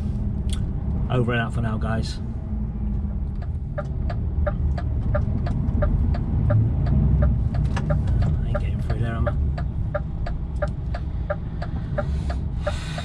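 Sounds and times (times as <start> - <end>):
diesel engine rumble: 0.0 - 13.0
turn indicator ticking: 3.0 - 13.0.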